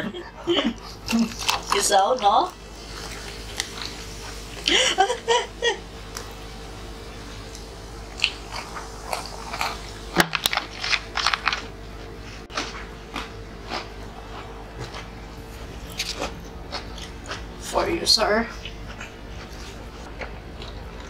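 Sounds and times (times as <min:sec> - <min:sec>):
faint steady hum: 0:00.0 - 0:21.0
chewing crunchy snacks: 0:00.7 - 0:04.7, 0:07.5 - 0:17.7, 0:18.5 - 0:21.0.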